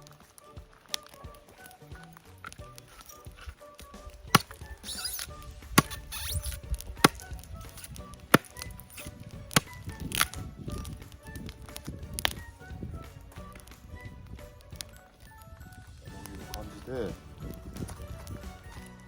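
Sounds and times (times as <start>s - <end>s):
soft background music: 0.0s - 19.0s
wood chopped with blade: 2.4s - 12.4s.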